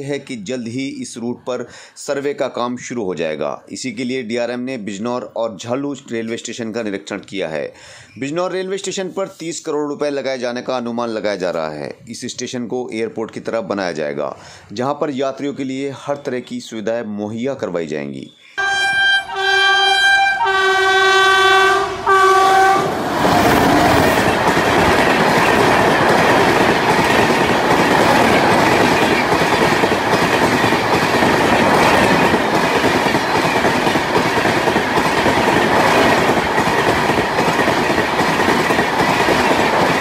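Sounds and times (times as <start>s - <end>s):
train horn blasts: 18.6s - 23.0s
train rumbling past: 18.6s - 40.0s
wheels clattering on rails: 23.1s - 40.0s.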